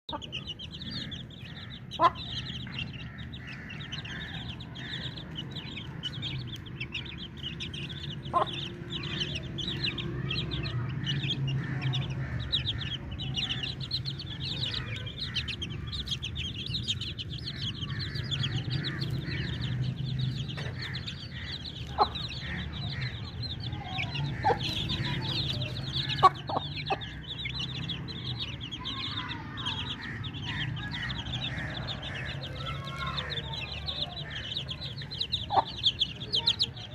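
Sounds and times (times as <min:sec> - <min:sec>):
chicks cheeping: 0:00.0 - 0:36.9
chicken clucking: 0:20.5 - 0:27.8, 0:33.8 - 0:36.9.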